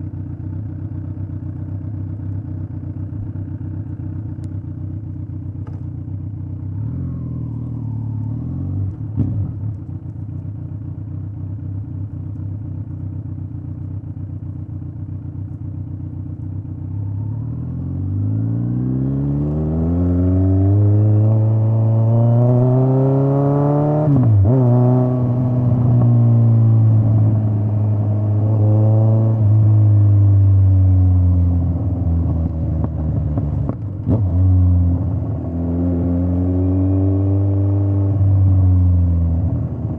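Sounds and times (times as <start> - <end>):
motorcycle exhaust revving: 10.8 - 39.9.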